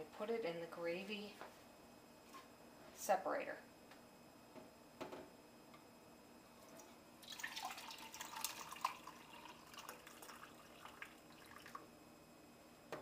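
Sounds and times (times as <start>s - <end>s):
liquid dripping: 6.6s - 11.8s
liquid pouring and splashing: 6.6s - 11.8s.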